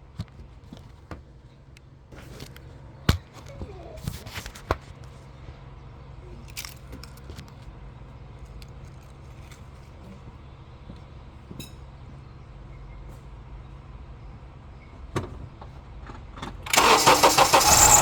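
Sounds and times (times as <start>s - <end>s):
car keys jingling: 16.7s - 18.0s.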